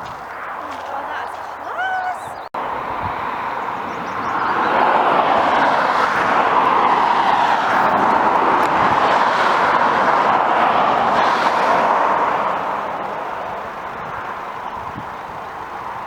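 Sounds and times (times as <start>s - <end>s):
road vehicle tyres and engine: 0.0s - 16.0s.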